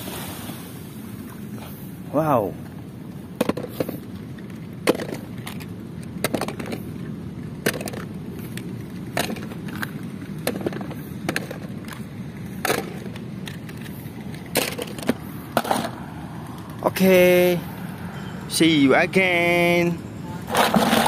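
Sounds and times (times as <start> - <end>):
plastic clacks and knocks: 3.4 - 4.0, 4.8 - 6.8, 7.6 - 12.0, 12.6 - 16.0
toy car wheels rumbling: 20.4 - 21.0.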